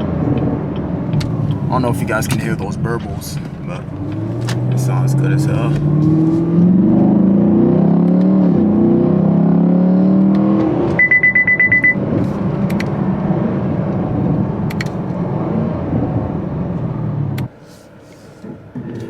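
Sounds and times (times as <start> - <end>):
exhaust crackles: 0.0 - 11.0
car engine pulling hard: 0.0 - 11.1, 11.8 - 17.6
rapid high electronic beeps: 11.0 - 12.0.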